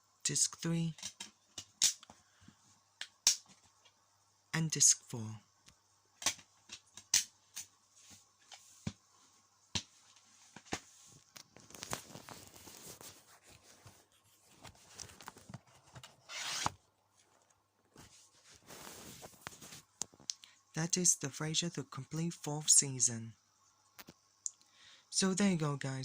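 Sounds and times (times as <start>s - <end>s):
cardboard rustling and rubbing: 10.2s - 16.8s, 18.0s - 19.9s
loud sliding scrape: 16.2s - 16.8s.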